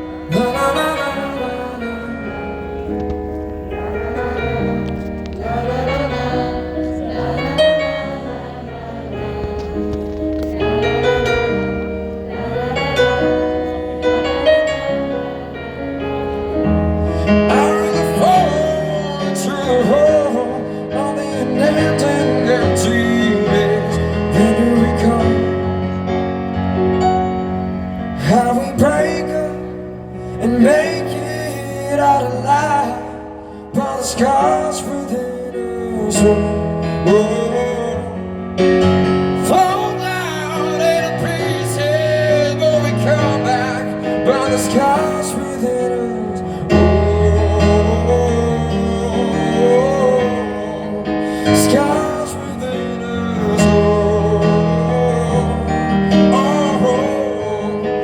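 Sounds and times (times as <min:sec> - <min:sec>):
sliding melody line: 0:00.0 - 0:33.0
keyboard chords: 0:00.0 - 0:58.0.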